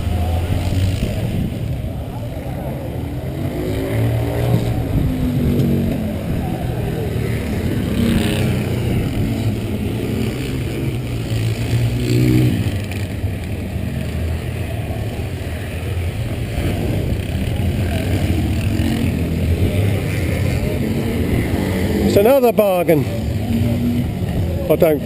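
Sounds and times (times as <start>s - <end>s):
people talking: 0.1s - 7.2s, 17.0s - 25.0s.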